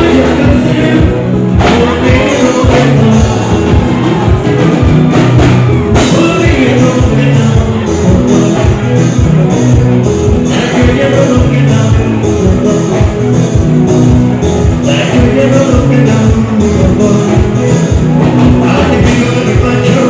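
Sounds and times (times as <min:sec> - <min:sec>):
bass line: 0:00.0 - 0:20.0
drum beat: 0:00.0 - 0:20.0
live band with singing: 0:00.0 - 0:20.0.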